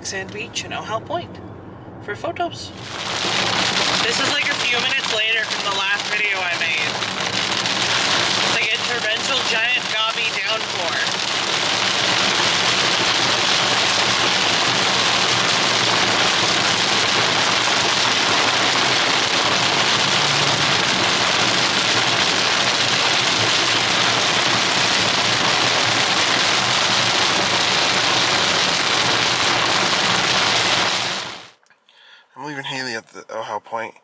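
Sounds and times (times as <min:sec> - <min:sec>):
heavy rain hissing: 0:02.8 - 0:31.6.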